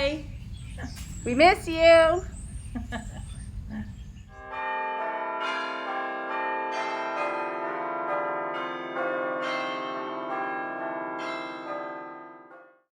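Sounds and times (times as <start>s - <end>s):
bells ringing: 4.3s - 12.8s.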